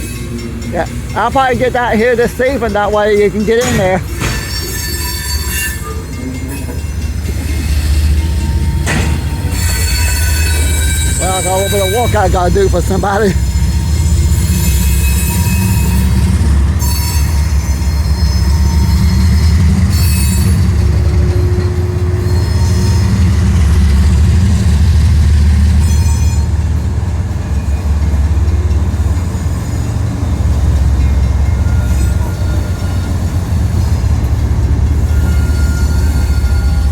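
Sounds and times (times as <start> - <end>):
train cars rumbling past: 0.0 - 36.9
wheel squeal: 3.8 - 12.2, 13.9 - 23.2, 25.8 - 26.6, 31.5 - 33.4, 34.9 - 36.9.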